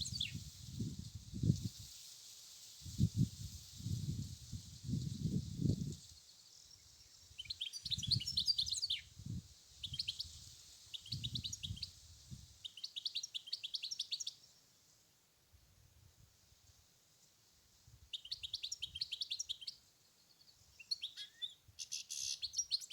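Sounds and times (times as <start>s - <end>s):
goldfinch singing: 0.0s - 0.4s.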